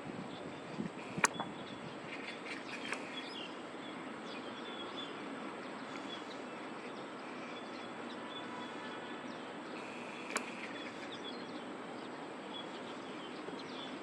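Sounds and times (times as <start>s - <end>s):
distant traffic hum: 0.0s - 14.0s
sharp click: 1.2s - 1.5s, 10.2s - 10.7s.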